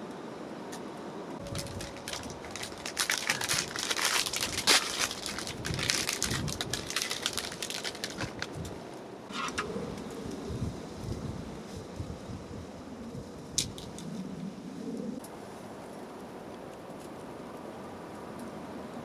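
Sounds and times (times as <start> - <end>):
plastic packaging crinkling: 1.4 - 8.8.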